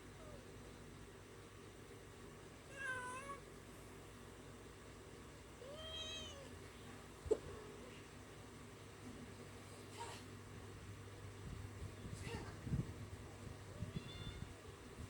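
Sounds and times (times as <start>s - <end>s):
cat meowing: 2.7s - 3.4s, 5.6s - 6.6s, 13.8s - 14.6s.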